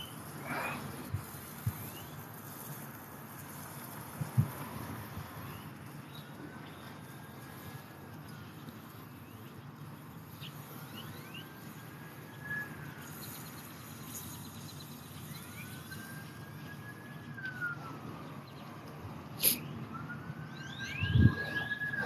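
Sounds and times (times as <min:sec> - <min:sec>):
traffic rumble: 0:00.0 - 0:22.0
distant emergency siren wailing: 0:04.3 - 0:14.3, 0:15.0 - 0:22.0.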